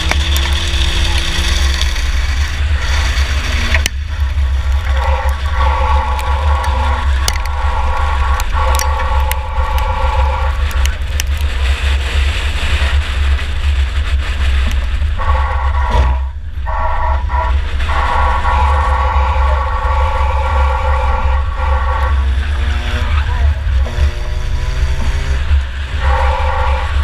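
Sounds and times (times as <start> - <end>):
car engine rumbling under load: 0.0 - 27.0.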